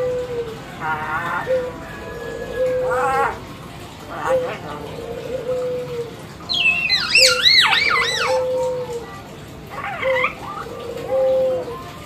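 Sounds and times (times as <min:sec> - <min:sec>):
bird whistling looping notes: 0:06.5 - 0:08.7.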